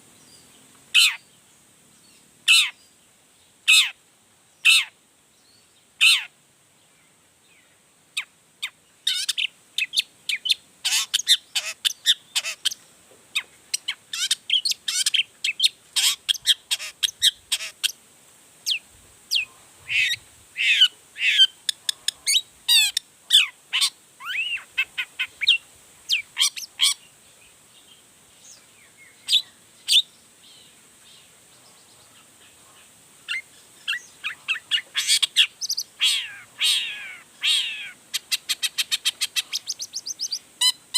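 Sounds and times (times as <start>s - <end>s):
shrike singing sharp calls: 18.6s - 27.1s, 33.3s - 40.8s.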